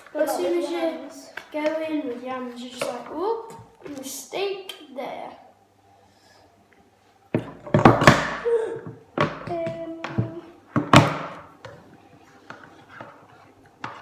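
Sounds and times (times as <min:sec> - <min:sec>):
loud knocks and thuds: 0:09.2 - 0:11.4.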